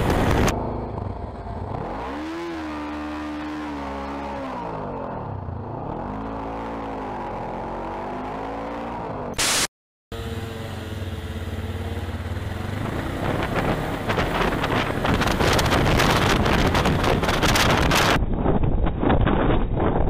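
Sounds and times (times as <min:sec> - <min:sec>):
wind buffeting on microphone: 0:00.0 - 0:00.5, 0:12.8 - 0:20.0
motorcycle engine running: 0:00.0 - 0:06.8, 0:10.1 - 0:18.2.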